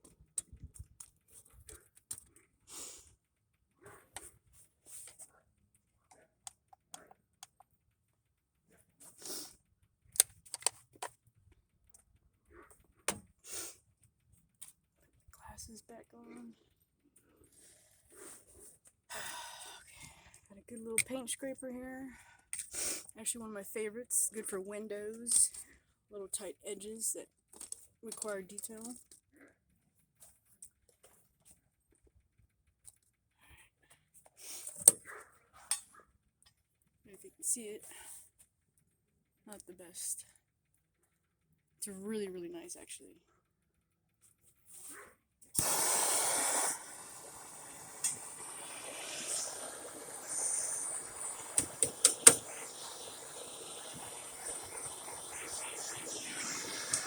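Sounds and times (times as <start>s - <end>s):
faint steady hiss: 45.5s - 57.0s
scraper scraping ice: 45.6s - 57.0s.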